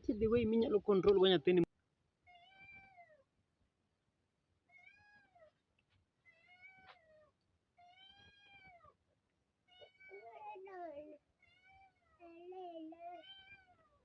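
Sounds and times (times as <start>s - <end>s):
cat meowing: 2.3s - 3.2s, 4.7s - 5.6s, 6.3s - 9.0s, 9.7s - 14.0s.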